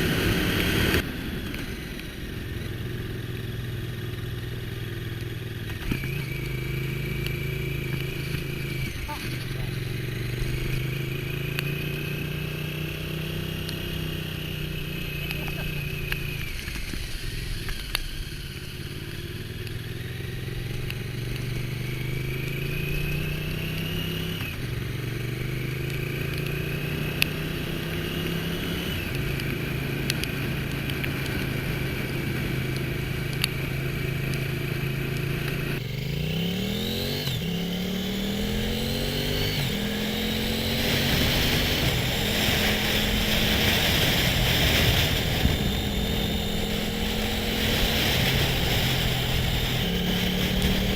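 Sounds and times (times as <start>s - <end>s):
motorcycle engine running: 0.0s - 50.9s
wind rush: 40.6s - 50.9s.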